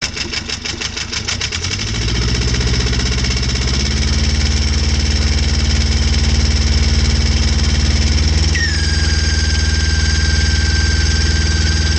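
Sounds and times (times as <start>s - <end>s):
marine diesel engine running: 0.0s - 11.9s.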